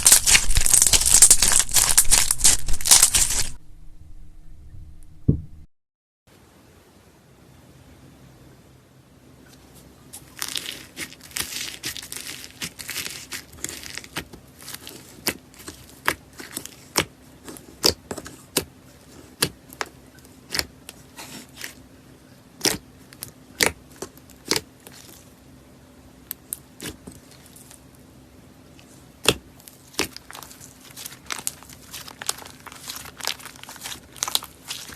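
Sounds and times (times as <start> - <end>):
slime crackling: 0.0 - 3.6, 10.2 - 19.9, 29.2 - 34.9.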